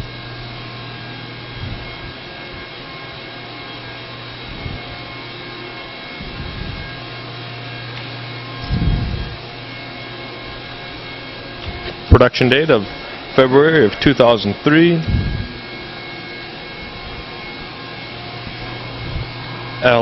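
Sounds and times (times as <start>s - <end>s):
faint steady tones: 0.0s - 20.0s
steady low hum: 0.0s - 20.0s
short low thumps: 8.6s - 9.4s, 15.0s - 15.6s.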